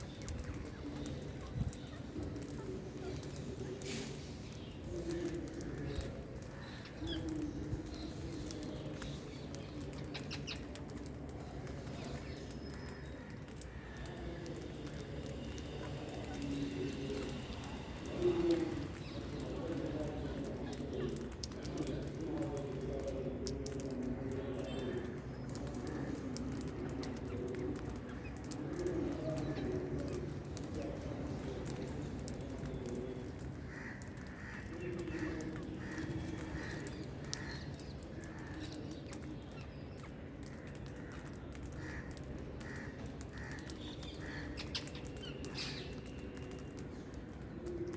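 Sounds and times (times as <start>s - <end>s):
small scattered clicks: 20.2s - 47.9s.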